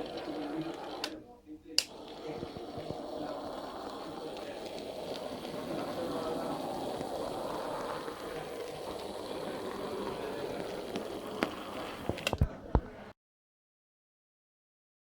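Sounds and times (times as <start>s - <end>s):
model train motor whirring: 0.0s - 1.2s, 1.8s - 12.4s
sharp clicks: 1.8s - 2.1s.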